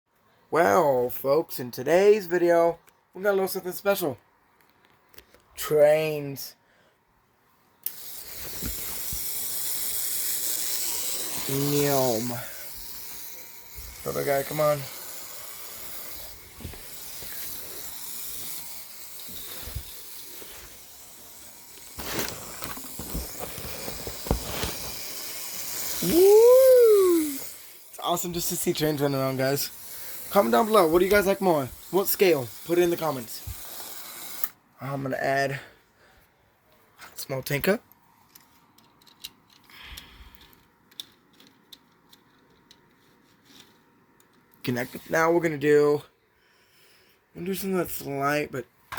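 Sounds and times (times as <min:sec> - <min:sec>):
model train hissing on track: 0:07.8 - 0:34.5.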